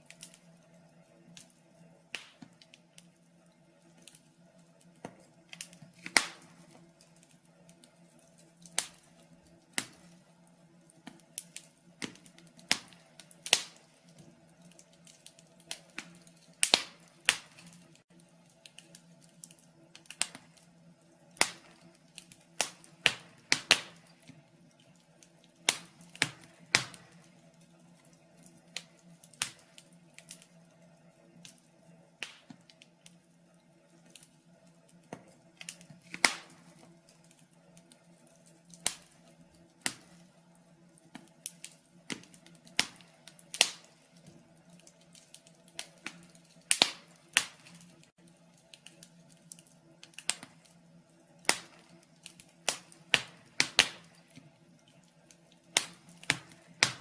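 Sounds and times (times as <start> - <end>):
faint steady hum: 0.0 - 57.0
fireplace fire crackling: 0.0 - 57.0.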